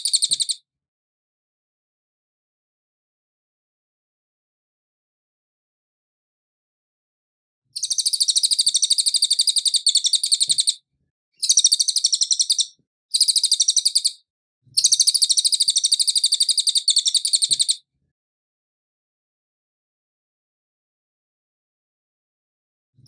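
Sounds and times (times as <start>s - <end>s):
songbird singing high clear notes: 0.0s - 0.6s, 7.8s - 10.8s, 11.4s - 14.2s, 14.8s - 17.8s.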